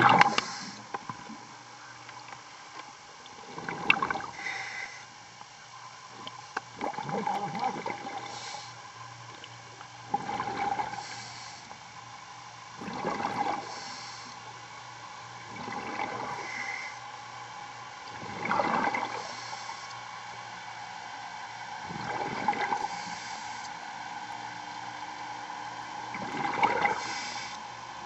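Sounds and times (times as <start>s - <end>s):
exhaled bubbles underwater: 0.0s - 1.5s, 3.3s - 4.5s, 6.1s - 8.7s, 9.4s - 11.5s, 12.7s - 14.2s, 15.4s - 16.7s, 18.0s - 19.6s, 21.8s - 23.5s, 26.0s - 27.4s
regulator inhalation hiss: 0.3s - 0.9s, 4.3s - 5.1s, 8.2s - 8.8s, 10.9s - 11.8s, 13.6s - 14.5s, 19.2s - 20.0s, 22.8s - 23.8s, 26.9s - 27.6s.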